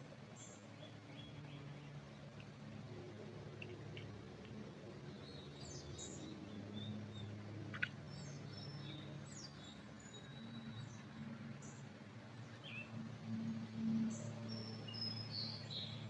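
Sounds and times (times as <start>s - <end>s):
small birds chirping: 5.0s - 11.9s, 14.1s - 16.0s.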